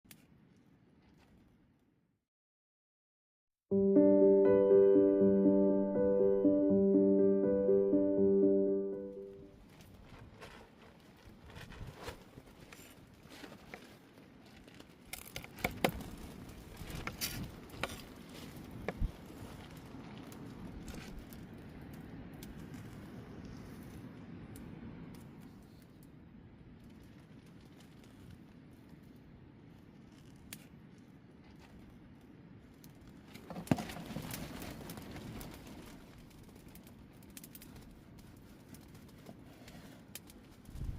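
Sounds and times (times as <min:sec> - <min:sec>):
rustling crackling noise: 0:04.0 - 0:40.9.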